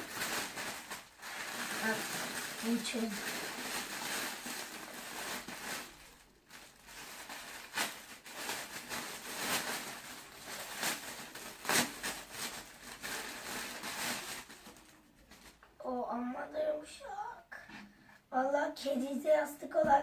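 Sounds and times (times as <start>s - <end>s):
plastic packaging crinkling: 0.0s - 15.7s.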